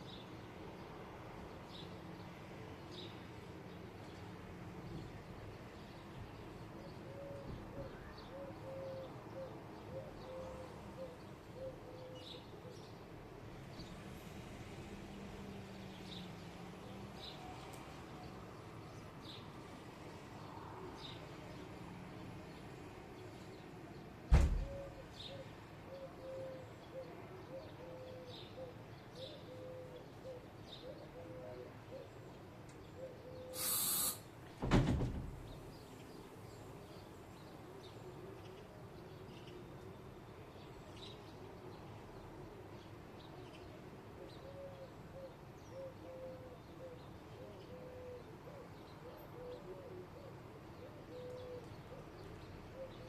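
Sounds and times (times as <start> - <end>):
loud thump: 24.3 - 24.7, 34.6 - 35.4
burst of hiss: 33.5 - 34.3
small high chirps: 33.6 - 34.2.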